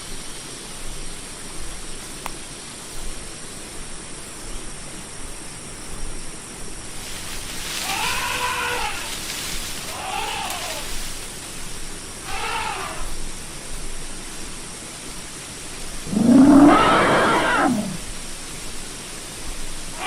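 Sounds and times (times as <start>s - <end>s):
outdoor hiss: 0.0s - 20.0s
elephant trumpeting: 7.8s - 9.2s, 9.8s - 11.0s, 12.2s - 13.0s, 16.1s - 18.0s.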